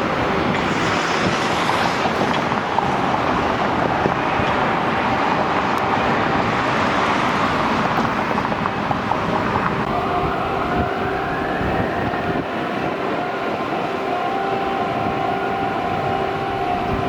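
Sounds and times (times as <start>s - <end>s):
road traffic rumble: 0.0s - 17.0s
wind buffeting microphone: 0.0s - 17.0s.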